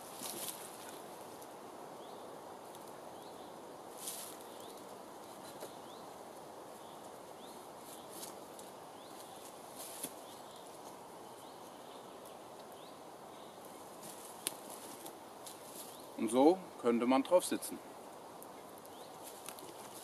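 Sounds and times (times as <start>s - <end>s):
branches rustling and knocking: 0.0s - 1.5s, 3.9s - 6.0s, 7.8s - 11.0s, 13.7s - 16.1s, 18.8s - 20.0s
steady outdoor hiss: 0.0s - 20.0s
small bird chirping: 18.4s - 20.0s.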